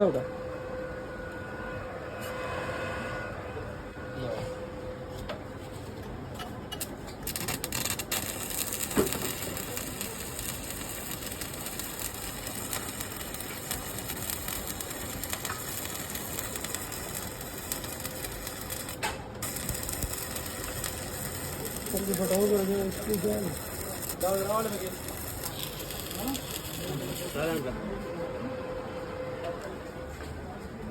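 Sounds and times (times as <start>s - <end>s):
welding arc crackling: 6.8s - 27.7s.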